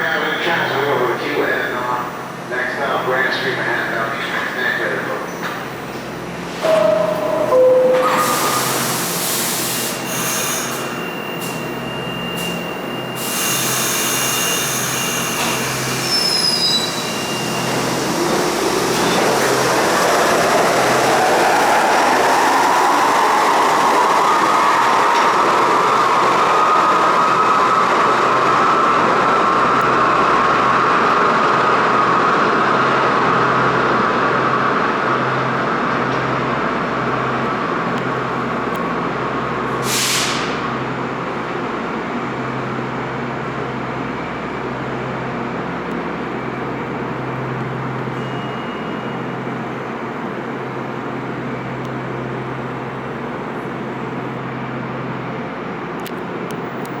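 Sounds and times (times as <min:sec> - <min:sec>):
subway train rumbling: 0:00.0 - 0:57.0
high steady tone: 0:06.6 - 0:08.8
short hiss: 0:39.8 - 0:40.6.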